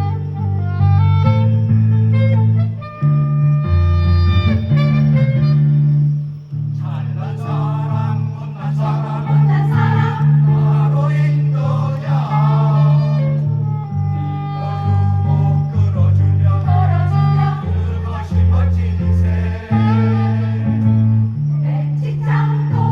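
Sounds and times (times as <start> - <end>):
instrumental music with bass line: 0.0 - 22.9
choir singing: 6.8 - 22.9.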